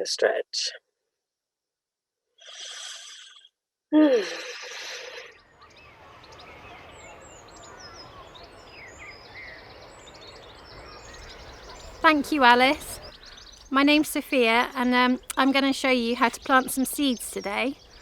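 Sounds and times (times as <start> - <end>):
small birds chirping: 5.2 - 18.0.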